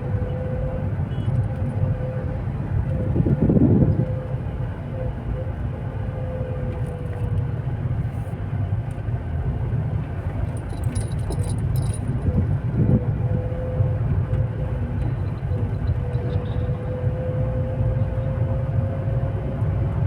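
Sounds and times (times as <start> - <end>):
car road and engine rumble: 0.0 - 20.0
light metallic jingling: 10.5 - 12.2.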